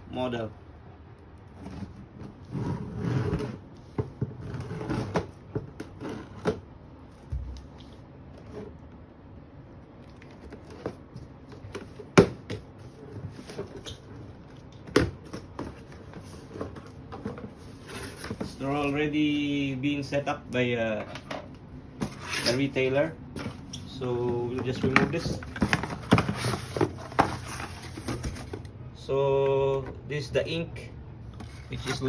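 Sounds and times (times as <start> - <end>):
packaging rustling: 23.4 - 28.7.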